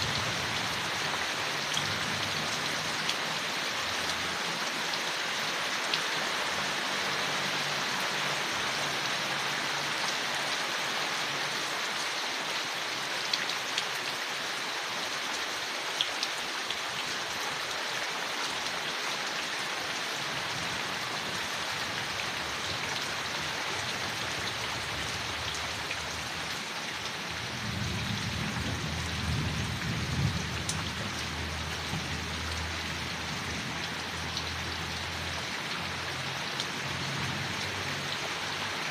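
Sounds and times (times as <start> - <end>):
rain falling on leaves: 0.0 - 38.9
sharp water drips: 28.6 - 38.9.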